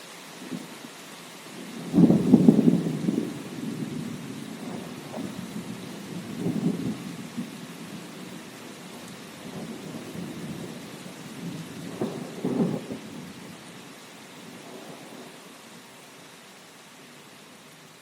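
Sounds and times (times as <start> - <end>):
steady rain: 0.0 - 18.0
thunder rumbling low: 1.8 - 8.4, 9.4 - 13.4.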